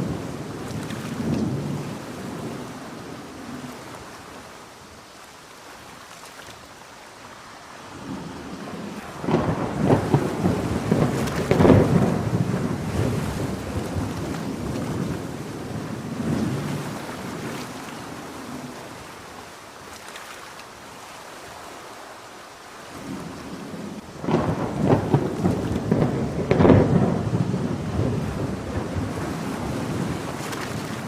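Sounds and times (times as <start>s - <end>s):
thunder rumbling: 0.0s - 3.2s, 8.0s - 17.6s, 23.0s - 31.0s
steady rain: 0.0s - 31.0s.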